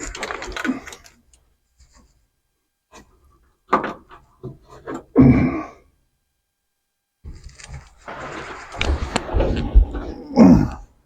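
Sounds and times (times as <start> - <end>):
clunk and scrape: 7.2 - 10.4.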